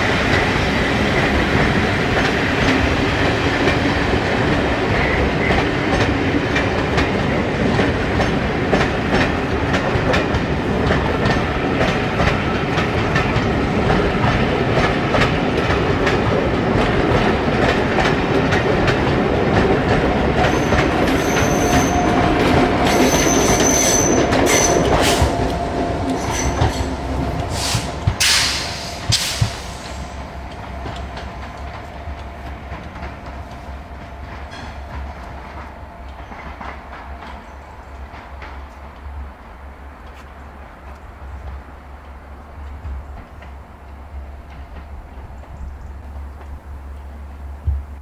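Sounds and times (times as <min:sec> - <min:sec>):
train wheels clicking over rail joints: 0:00.1 - 0:39.3
thin wheel squeals: 0:20.5 - 0:22.1.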